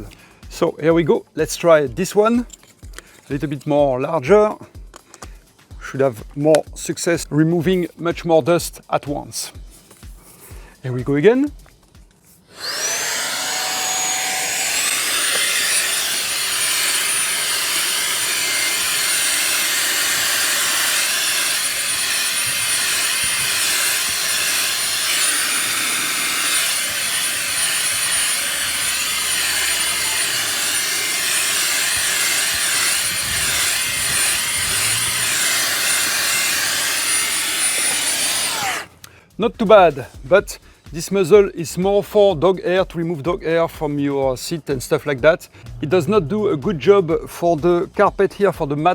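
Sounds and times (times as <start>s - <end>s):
handheld vacuum running: 12.5s - 39.0s.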